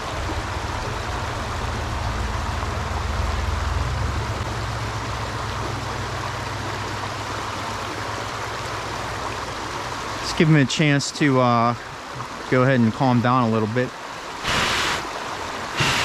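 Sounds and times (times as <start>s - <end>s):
low rumble: 0.1s - 6.8s
water rushing over stream riffle: 4.3s - 16.0s.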